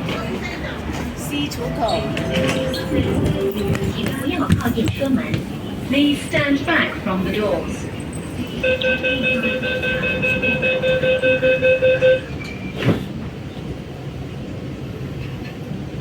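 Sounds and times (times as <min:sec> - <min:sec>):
train running noise: 0:00.0 - 0:16.0
train doors shutting knock: 0:01.7 - 0:05.5.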